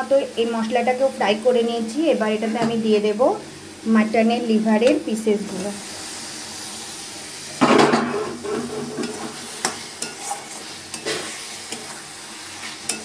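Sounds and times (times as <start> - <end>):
liver sizzling in hot oil: 0.0 - 13.0
metal spatula scraping a pan: 7.6 - 13.0.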